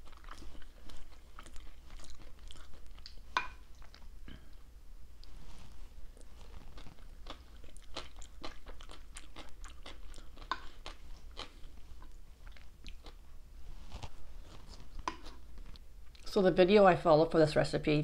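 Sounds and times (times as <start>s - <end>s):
crunchy chewing: 0.0s - 4.4s, 6.1s - 13.3s.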